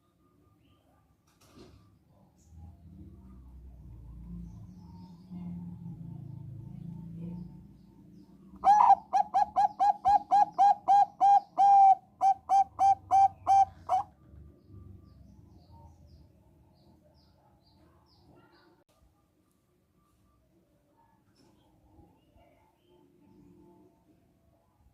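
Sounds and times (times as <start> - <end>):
dove cooing: 8.6 - 14.1.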